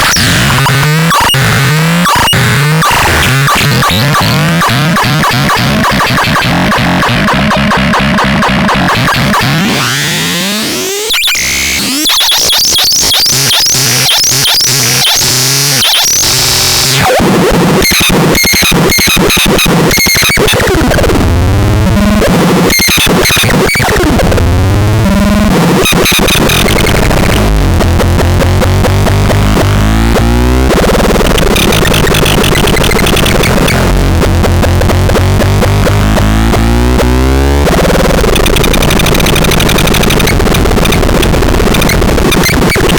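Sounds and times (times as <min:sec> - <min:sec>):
harsh electronic noise instrument: 0:00.0 - 0:42.9
high electronic chirps: 0:25.7 - 0:27.5.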